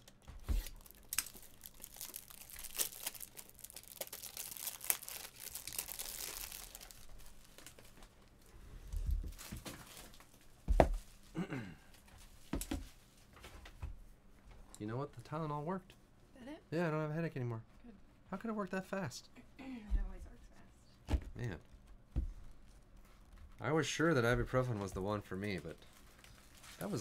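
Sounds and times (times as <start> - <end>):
plastic wrappers tearing and crinkling: 0.0 - 8.4, 9.3 - 10.4, 25.1 - 27.0.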